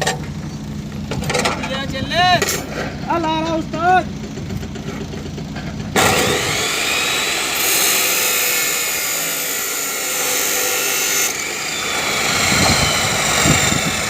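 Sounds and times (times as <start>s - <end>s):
power cutter whine: 4.1s - 14.0s
disc cutting steel rebar: 5.9s - 14.0s.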